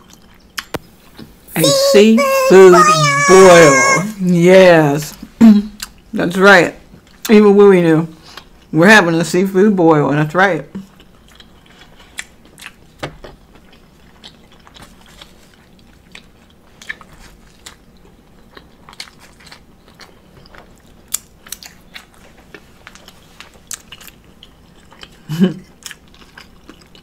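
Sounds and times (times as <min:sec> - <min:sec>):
person chewing a waffle: 0:00.0 - 0:01.4, 0:10.8 - 0:27.0.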